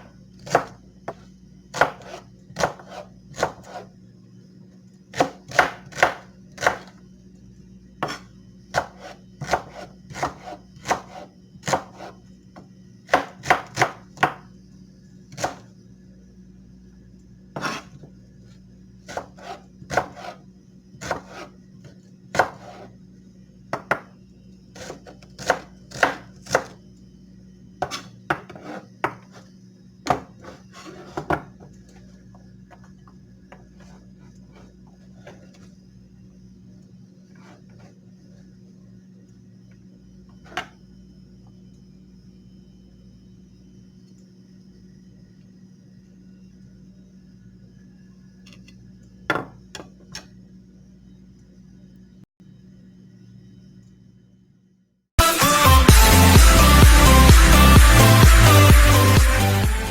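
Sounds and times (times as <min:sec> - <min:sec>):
knife chopping on cutting board: 0:00.0 - 0:03.9, 0:05.1 - 0:06.9, 0:08.0 - 0:12.2, 0:13.1 - 0:14.4, 0:15.4 - 0:15.6, 0:17.6 - 0:18.0, 0:19.1 - 0:20.4, 0:21.0 - 0:21.5, 0:22.3 - 0:22.9, 0:24.8 - 0:26.8, 0:27.8 - 0:29.4.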